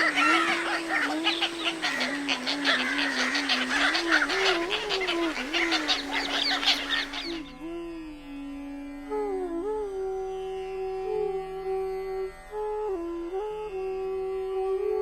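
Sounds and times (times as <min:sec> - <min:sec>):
many birds chattering: 0:00.0 - 0:07.5
bamboo flute melody: 0:00.0 - 0:15.0.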